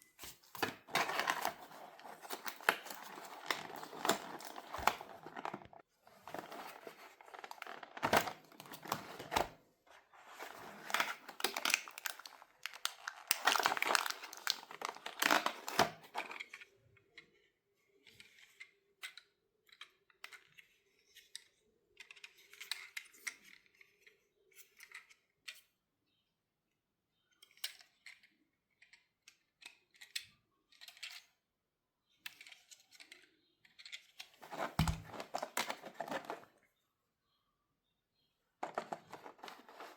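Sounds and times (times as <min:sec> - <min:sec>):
plastic packaging crinkling: 0:00.2 - 0:16.4, 0:34.4 - 0:36.5, 0:38.6 - 0:39.9
plastic parts clicking: 0:00.6 - 0:09.6, 0:10.2 - 0:16.6, 0:32.2 - 0:36.5, 0:38.6 - 0:39.9.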